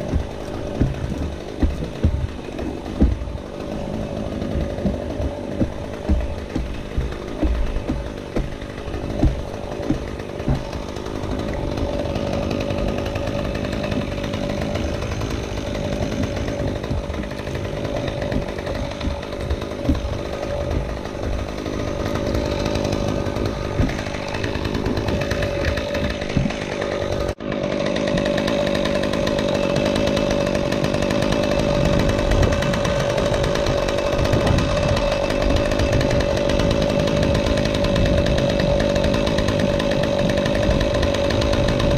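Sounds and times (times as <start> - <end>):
sharp knocks: 0.0 - 27.3
chainsaw running: 0.0 - 41.9.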